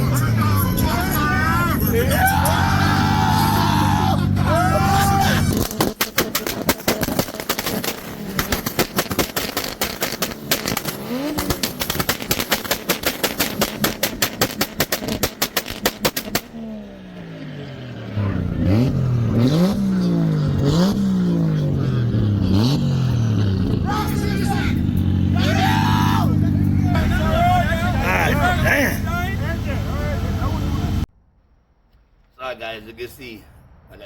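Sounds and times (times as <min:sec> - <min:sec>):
car engine revving in blips: 0:00.0 - 0:31.1
exhaust popping and banging: 0:02.3 - 0:16.8.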